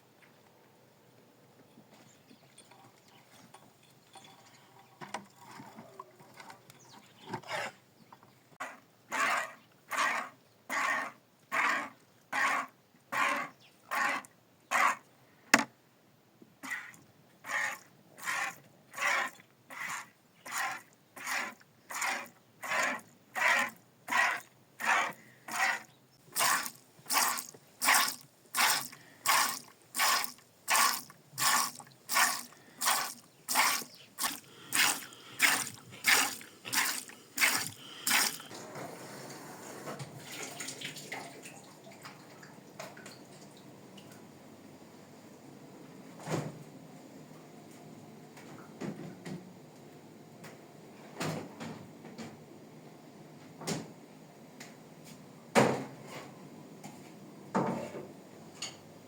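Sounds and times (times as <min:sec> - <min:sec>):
milk squirting into a pail: 0:26.3 - 0:38.5.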